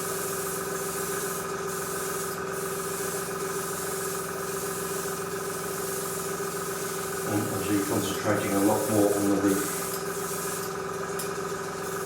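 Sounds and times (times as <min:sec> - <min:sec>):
airbrush hissing: 0:00.0 - 0:10.8
steady hum: 0:07.0 - 0:10.6.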